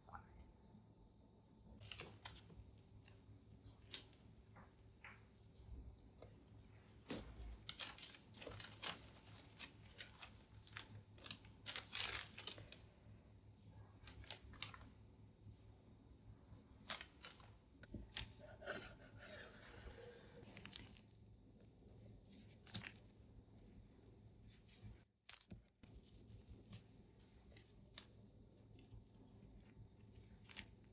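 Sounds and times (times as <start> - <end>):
paper crinkling: 7.0 - 12.9, 14.0 - 14.9, 16.8 - 19.0.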